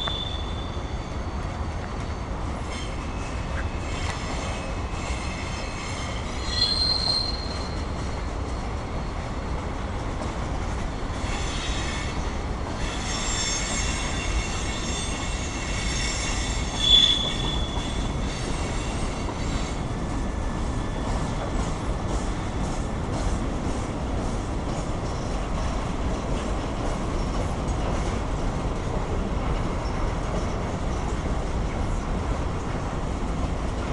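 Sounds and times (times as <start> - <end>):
wheels squealing on rails: 0.0 - 9.7, 11.1 - 23.4
train cars rumbling past: 0.0 - 33.9.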